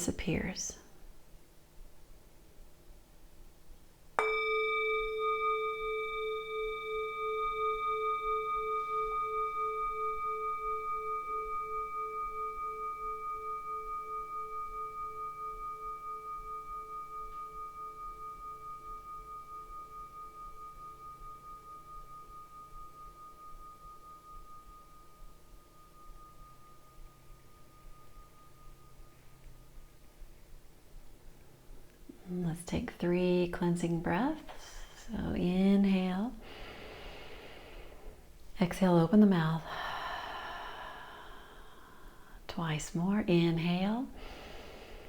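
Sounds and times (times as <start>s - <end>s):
singing bowl ringing: 4.2s - 31.5s.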